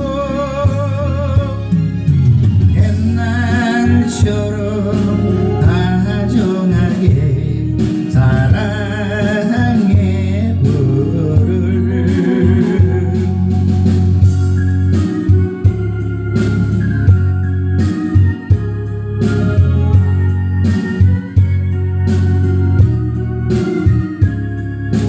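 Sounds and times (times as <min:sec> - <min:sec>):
person singing with vibrato: 0:00.0 - 0:02.2, 0:02.8 - 0:14.4
keyboard and bass backing: 0:00.0 - 0:25.0.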